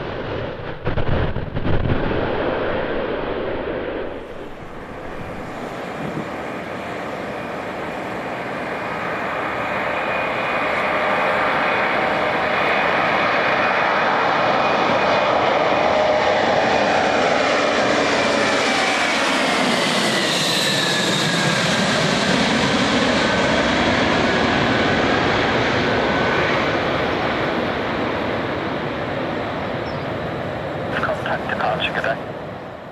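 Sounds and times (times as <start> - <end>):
jet aircraft passing: 0.0 - 32.9.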